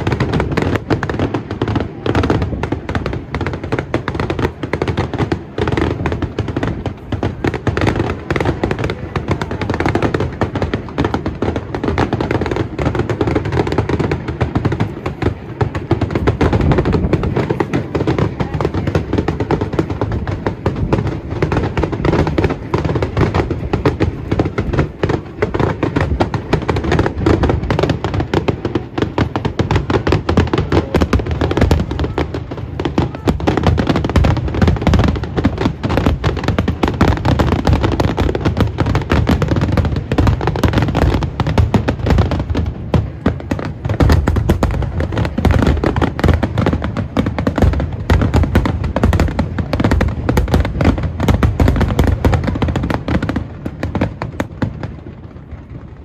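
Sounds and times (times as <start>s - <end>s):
fireworks barrage: 0.0s - 56.0s.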